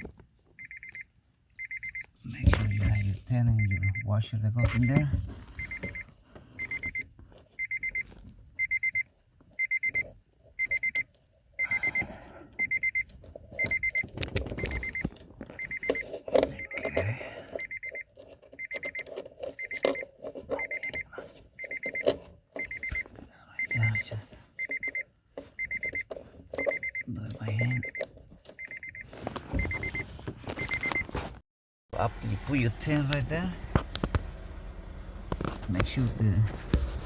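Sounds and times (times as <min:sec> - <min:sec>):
car warning chime beeping: 0:00.0 - 0:31.0, 0:32.0 - 0:35.2
clicks and rustles of handled parts: 0:12.9 - 0:16.8, 0:17.4 - 0:23.3.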